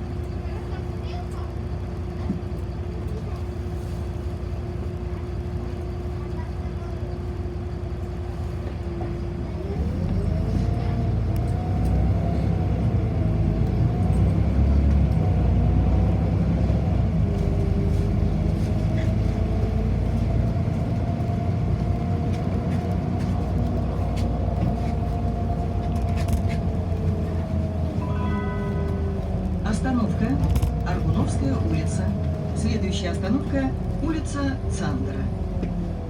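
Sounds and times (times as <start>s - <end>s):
bus engine rumble: 0.0s - 36.0s
drivetrain whine: 9.5s - 36.0s.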